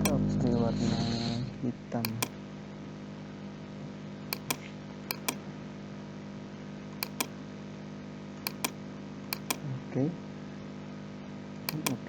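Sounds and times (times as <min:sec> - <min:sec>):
computer mouse clicking: 0:00.0 - 0:00.2, 0:02.1 - 0:02.3, 0:04.4 - 0:05.4, 0:07.0 - 0:07.3, 0:08.5 - 0:08.8, 0:09.4 - 0:09.6, 0:11.7 - 0:12.0.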